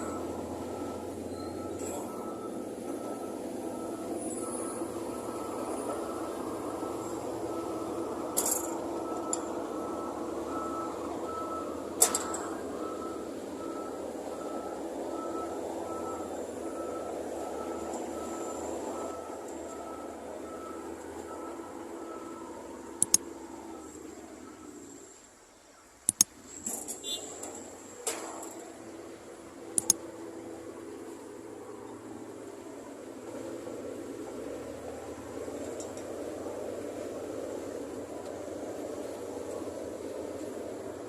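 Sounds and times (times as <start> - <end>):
faint high steady tone: 0.0 - 26.3
heavy machinery engines rumbling: 0.0 - 41.0
sharp clicks: 23.0 - 23.3, 26.0 - 26.8, 29.8 - 30.0.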